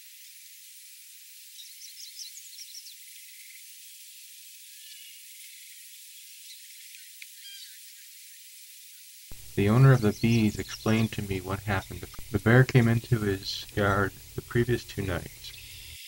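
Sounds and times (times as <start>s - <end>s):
faint high hiss: 9.3s - 16.0s
high bird chirps: 9.3s - 16.0s.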